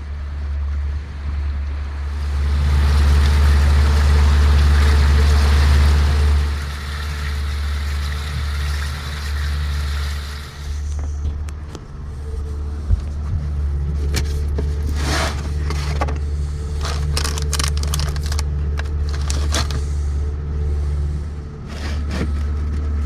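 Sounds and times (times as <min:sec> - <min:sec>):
boat motor droning: 0:00.0 - 0:23.0
scraping noises: 0:10.6 - 0:23.0.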